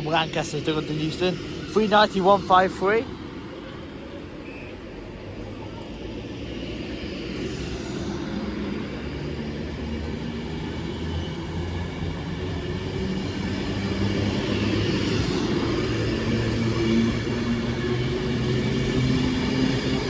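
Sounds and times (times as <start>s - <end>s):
rail and wheel noise: 0.0s - 20.0s
electric train motor hum: 5.8s - 20.0s.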